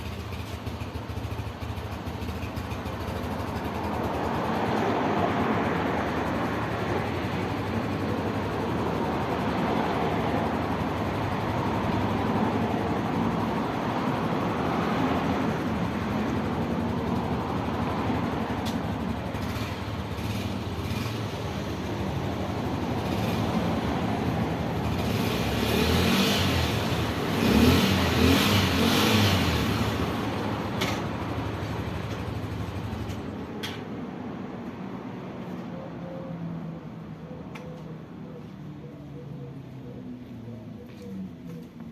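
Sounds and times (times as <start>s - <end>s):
motorcycle engine running: 0.0s - 33.3s.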